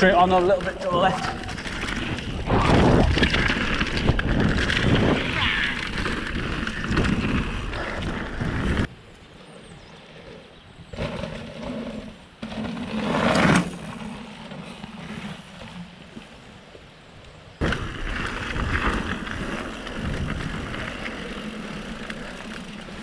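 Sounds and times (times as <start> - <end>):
tyres rumbling over ground: 0.0 - 23.0
wind on microphone: 1.2 - 9.0, 17.8 - 22.0.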